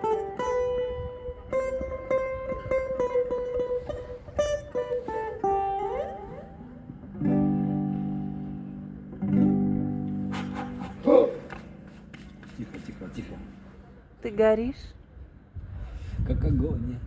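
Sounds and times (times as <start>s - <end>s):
electric guitar playing: 0.0s - 10.8s.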